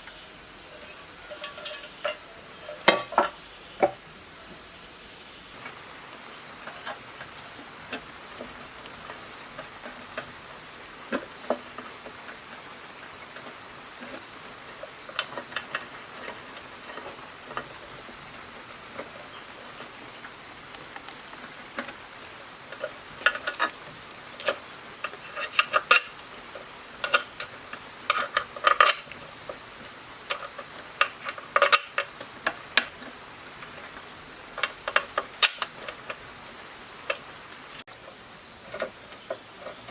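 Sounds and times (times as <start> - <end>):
steady high hiss: 0.0 - 39.9
metallic clicks of hand tools: 34.6 - 36.2.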